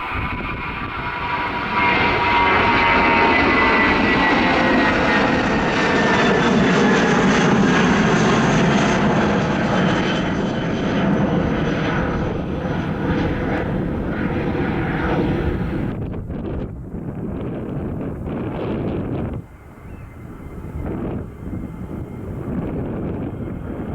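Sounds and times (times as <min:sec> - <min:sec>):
jet engines rumbling with whine: 0:00.0 - 0:23.9.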